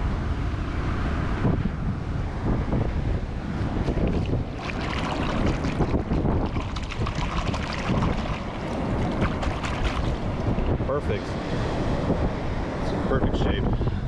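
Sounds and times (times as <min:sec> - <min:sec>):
surf washing ashore: 0:00.0 - 0:14.0
wind buffeting microphone: 0:00.0 - 0:14.0
crackly splashing water: 0:03.5 - 0:11.0.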